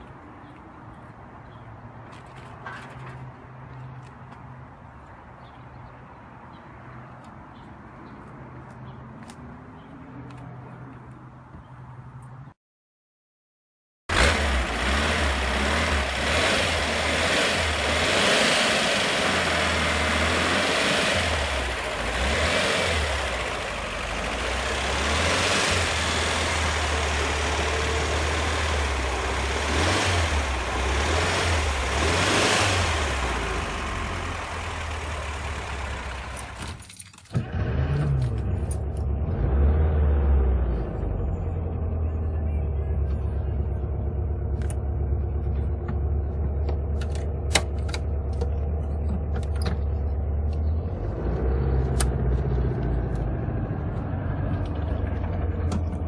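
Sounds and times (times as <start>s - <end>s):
old car engine revving: 14.1s - 36.7s, 37.3s - 41.3s, 46.0s - 56.0s.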